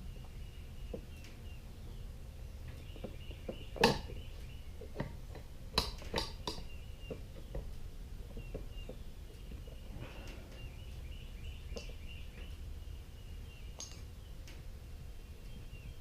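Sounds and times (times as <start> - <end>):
light ticks: 11.7 - 12.5.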